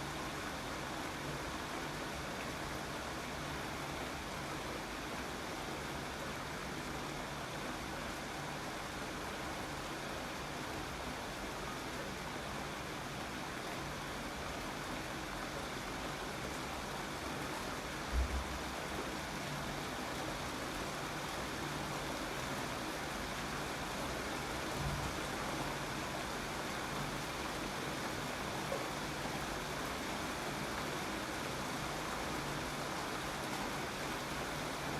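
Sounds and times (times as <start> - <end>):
steady rainfall: 0.0 - 34.9
low thump: 18.1 - 18.6.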